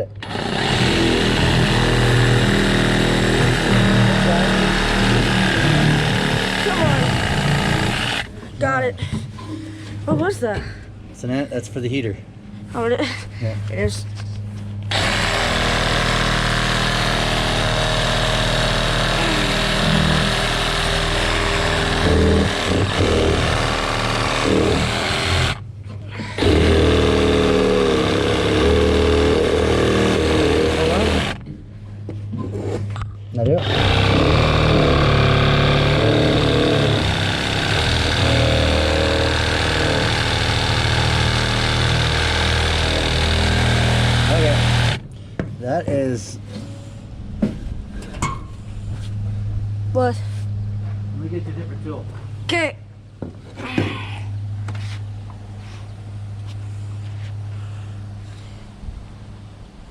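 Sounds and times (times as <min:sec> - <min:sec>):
motor-driven machine running: 0:00.0 - 0:08.8, 0:14.8 - 0:31.4, 0:33.4 - 0:45.0.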